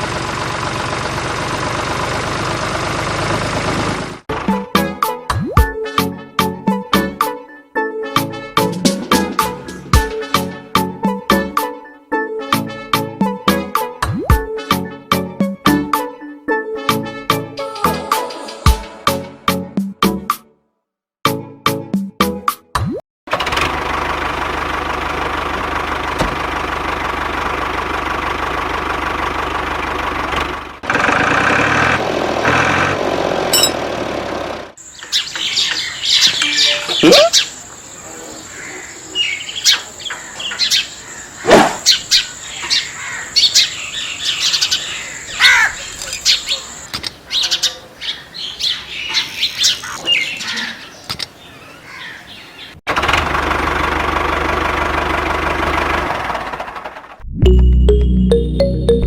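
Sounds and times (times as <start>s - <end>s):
birds chirping: 34.8s - 52.8s.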